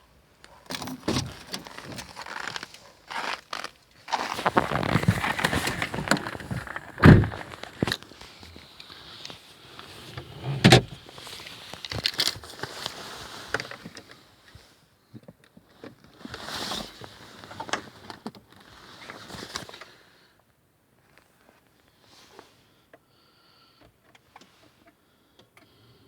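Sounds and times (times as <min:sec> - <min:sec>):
knocks and clicks from handling car: 0:07.0 - 0:07.4.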